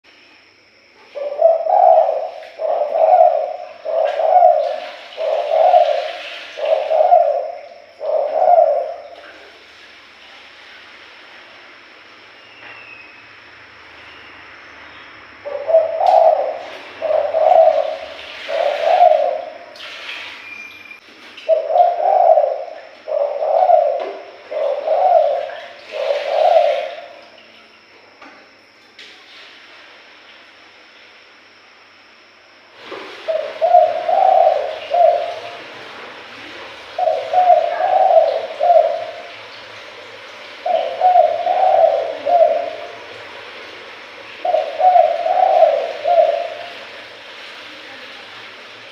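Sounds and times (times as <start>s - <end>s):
steady hiss: 0.0s - 48.9s
dove cooing: 1.2s - 9.4s, 15.4s - 19.7s, 21.4s - 27.2s, 33.1s - 39.6s, 40.6s - 43.4s, 44.2s - 47.1s.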